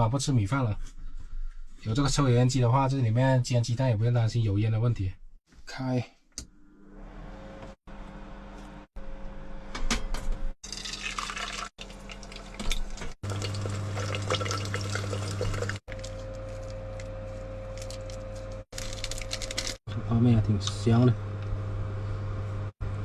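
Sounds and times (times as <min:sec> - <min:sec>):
liquid bubbling and sizzling: 0:10.6 - 0:19.8
range hood fan hum: 0:13.3 - 0:23.0.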